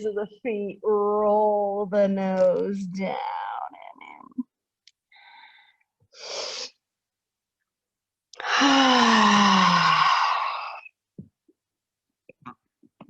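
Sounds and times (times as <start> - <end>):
woman sighing exhale: 8.4 - 10.9.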